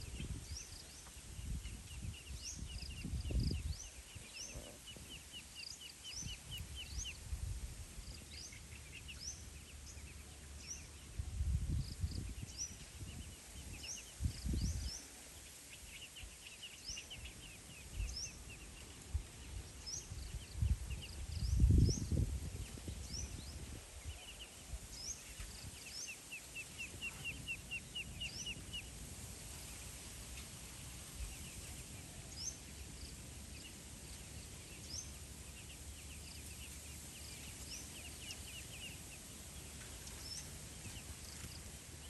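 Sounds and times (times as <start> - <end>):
low wind rumbles on microphone: 0.0 - 5.3, 6.0 - 15.2, 16.2 - 26.0
small birds chirping: 0.0 - 42.0.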